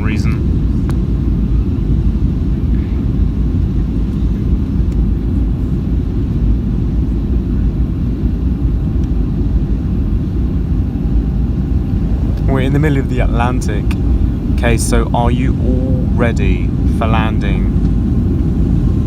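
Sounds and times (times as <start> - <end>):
airplane cabin rumble: 0.0 - 19.0.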